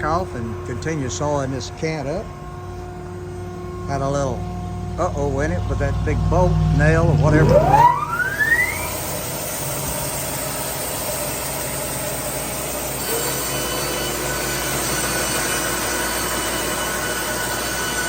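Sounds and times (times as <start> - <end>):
higher whine: 0.0 - 9.4
band sawmill whining: 0.0 - 18.0.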